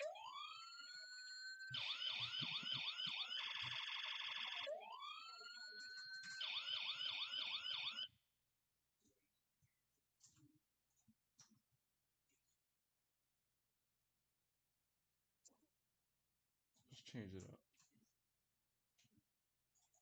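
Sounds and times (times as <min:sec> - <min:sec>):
toy electronic sirens: 0:00.0 - 0:08.1.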